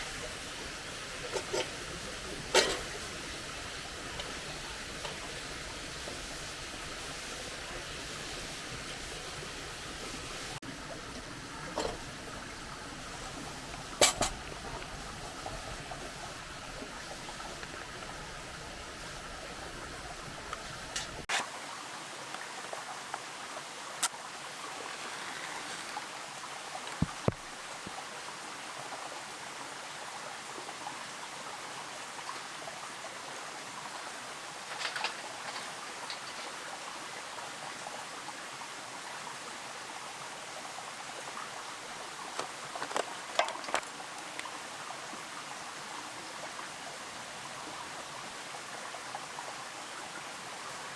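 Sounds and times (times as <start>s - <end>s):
creek babbling: 0.0s - 29.2s.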